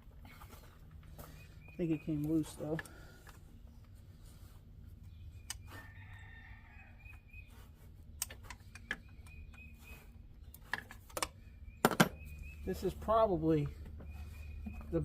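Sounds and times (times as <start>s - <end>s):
rooster crowing: 5.8s - 7.1s
sharp clicks: 8.2s - 9.6s.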